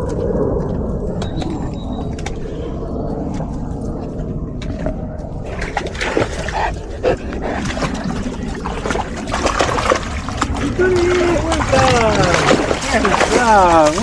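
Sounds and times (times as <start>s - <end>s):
low rumble: 0.0s - 14.0s
dog splashing through water: 5.4s - 14.0s.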